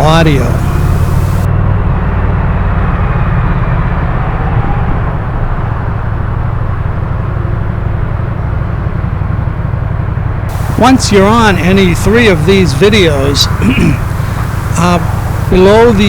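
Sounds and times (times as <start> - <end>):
motorcycle engine running: 0.0 - 1.5, 10.5 - 16.0
steady rushing noise: 0.0 - 1.5, 10.5 - 16.0.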